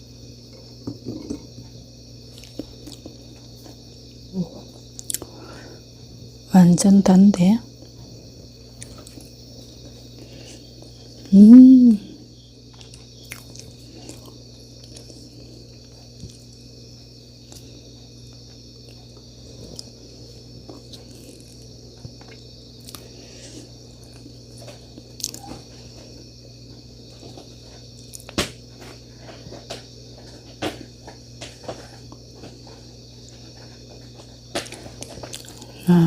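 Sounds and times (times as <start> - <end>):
faint steady hum: 0.0 - 36.0
chewing crunches: 2.3 - 3.2, 8.8 - 9.4, 12.7 - 16.6, 20.6 - 25.6, 34.6 - 35.8.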